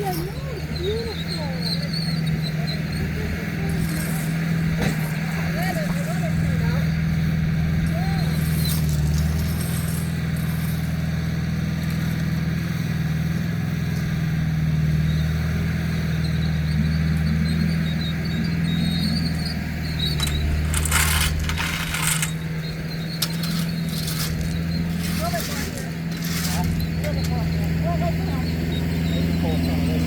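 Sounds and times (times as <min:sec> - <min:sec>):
heavy machine engine running: 0:00.0 - 0:30.0
sharp metallic clanks: 0:18.3 - 0:27.8.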